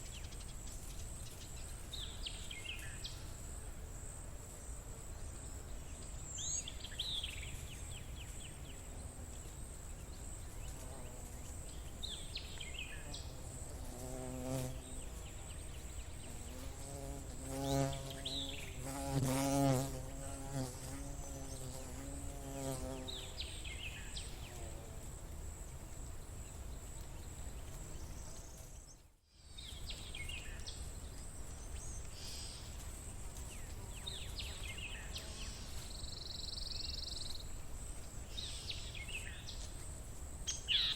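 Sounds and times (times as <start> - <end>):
buzzing flying insect: 12.7 - 25.2.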